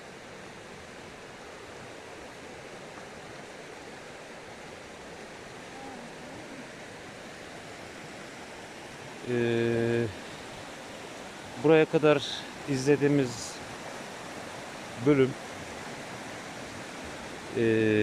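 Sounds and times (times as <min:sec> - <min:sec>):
water flowing: 0:00.0 - 0:18.0
person humming: 0:05.7 - 0:06.7, 0:17.6 - 0:18.0.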